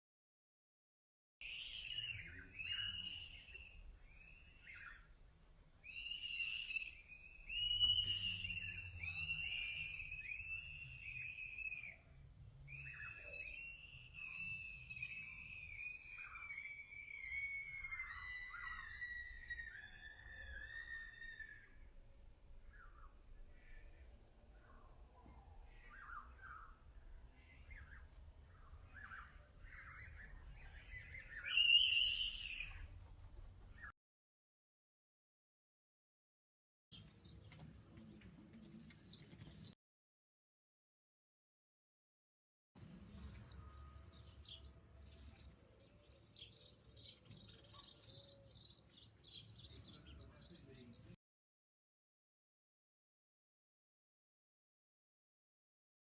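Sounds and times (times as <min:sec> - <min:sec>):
high-pitched bird scream: 0:01.4 - 0:05.1, 0:05.8 - 0:21.9, 0:25.7 - 0:26.8, 0:28.8 - 0:32.9, 0:37.6 - 0:39.8, 0:42.8 - 0:51.2
swifts calling: 0:01.4 - 0:05.2, 0:05.8 - 0:21.8, 0:22.7 - 0:33.0, 0:37.0 - 0:39.8, 0:42.8 - 0:51.2.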